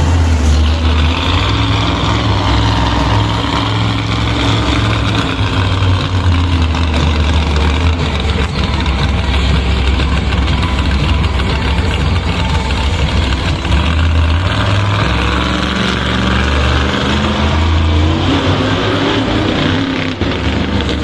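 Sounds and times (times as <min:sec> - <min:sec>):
truck engine rough idle: 0:00.0 - 0:21.0.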